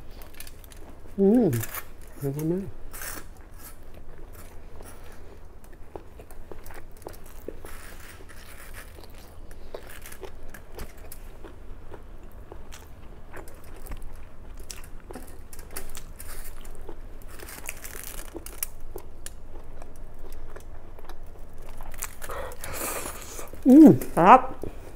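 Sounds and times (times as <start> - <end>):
steady low hum: 0.0 - 24.9
chewing with wet mouth clicks: 18.3 - 23.6.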